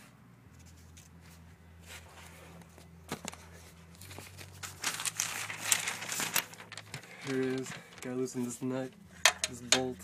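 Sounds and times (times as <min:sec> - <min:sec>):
steady low hum: 0:00.0 - 0:10.0
paper crinkling: 0:00.6 - 0:08.8.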